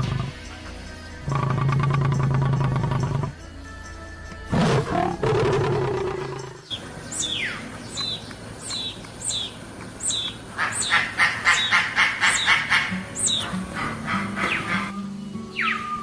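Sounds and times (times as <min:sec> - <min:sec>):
harsh pulsed bird calls: 0:04.5 - 0:16.0
high bird chirps: 0:05.3 - 0:16.0.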